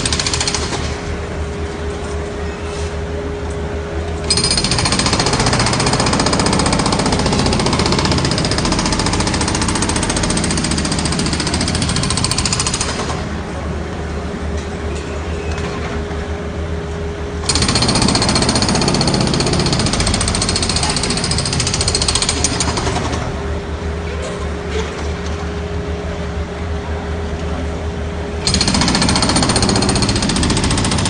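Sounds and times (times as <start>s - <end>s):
jackhammer hammering: 0.0s - 1.0s, 4.3s - 13.3s, 17.4s - 23.3s, 28.4s - 31.0s
steady machine hum: 0.0s - 31.0s.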